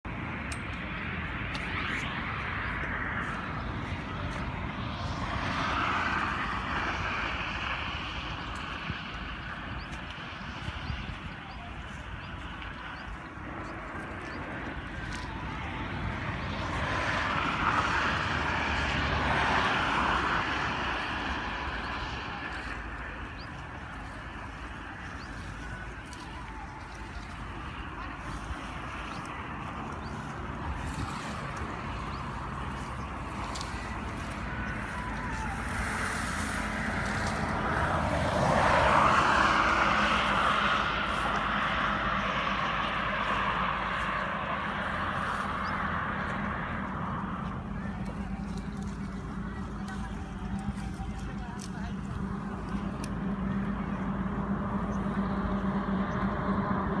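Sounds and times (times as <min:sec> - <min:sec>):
machine droning: 0:00.0 - 0:57.0
vehicle passing: 0:00.0 - 0:57.0.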